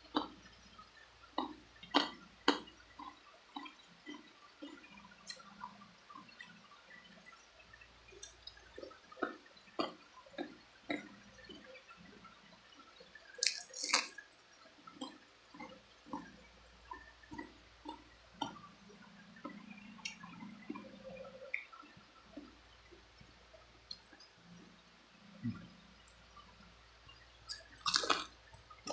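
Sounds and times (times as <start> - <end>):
wet chewing and sucking: 1.4 - 5.5, 8.2 - 11.1, 13.4 - 14.2, 15.0 - 18.6, 27.5 - 28.9.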